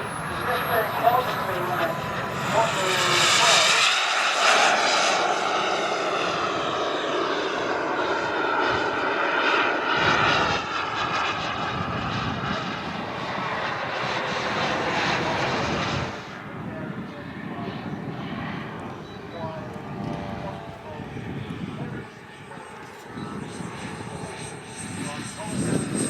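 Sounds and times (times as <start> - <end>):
model jet turbine whine: 0.0 - 26.0.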